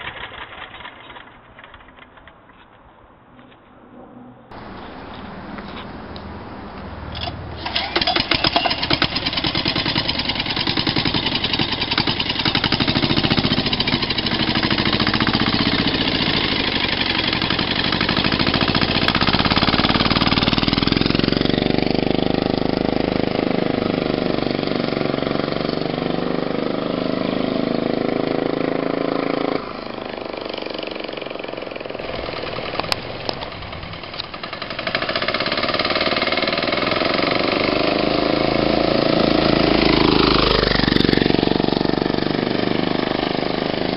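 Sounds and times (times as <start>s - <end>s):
diesel engine knocking: 7.9s - 22.8s, 32.0s - 37.9s.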